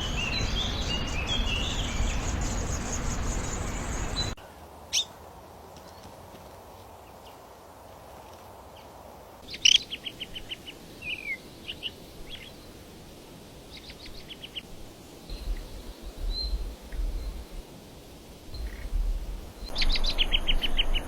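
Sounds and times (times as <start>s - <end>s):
songbirds chirping: 0.0s - 21.0s
low rumble: 15.3s - 17.6s, 18.5s - 21.0s.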